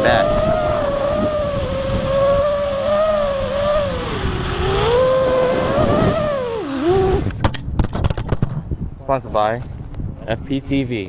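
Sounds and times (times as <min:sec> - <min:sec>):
quadcopter motors whining: 0:00.0 - 0:07.4.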